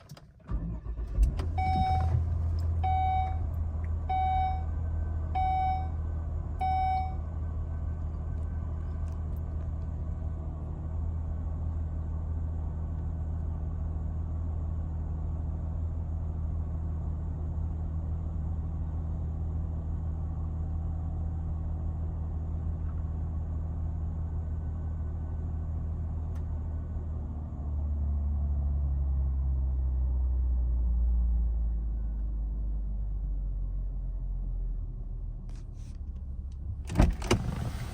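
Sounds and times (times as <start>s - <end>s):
car engine starting and idling: 0.0s - 17.1s, 31.4s - 37.9s
warning chime beeping: 5.4s - 5.9s, 6.6s - 7.2s.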